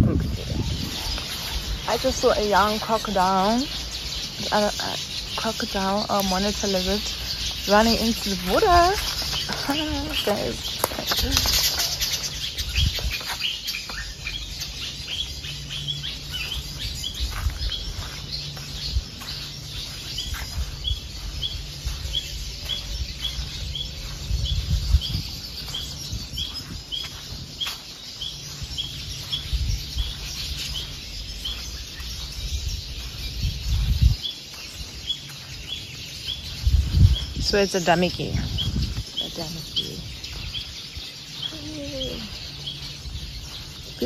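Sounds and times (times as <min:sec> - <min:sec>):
low rumbling and scuffing: 0:00.0 - 0:04.4, 0:15.2 - 0:44.0
bird high chirp: 0:00.0 - 0:44.0.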